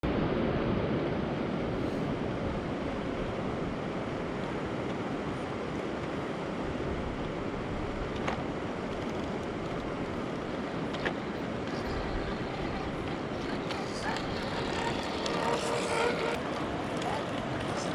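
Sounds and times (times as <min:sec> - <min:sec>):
faint clicks: 0:08.1 - 0:17.9.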